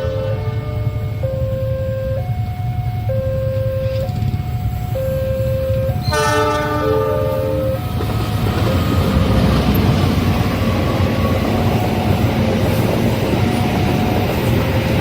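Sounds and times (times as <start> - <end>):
train horn chord: 0.0 - 2.2, 5.4 - 7.8
level-crossing alarm: 0.0 - 15.0
train rumble and wheel noise: 0.0 - 15.0.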